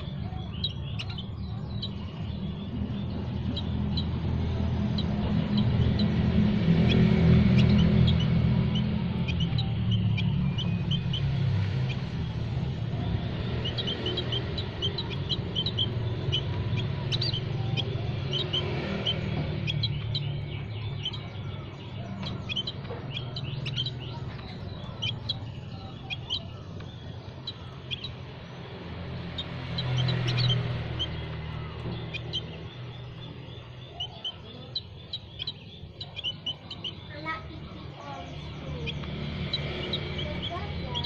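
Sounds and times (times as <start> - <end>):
songbirds chirping: 0.0 - 41.0
steady low rumble: 0.0 - 41.0.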